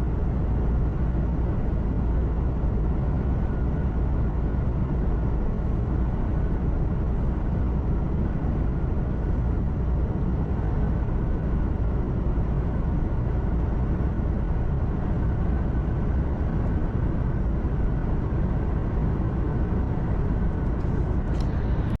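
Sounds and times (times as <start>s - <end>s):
faint steady whine: 0.0s - 22.0s
road noise: 9.4s - 22.0s.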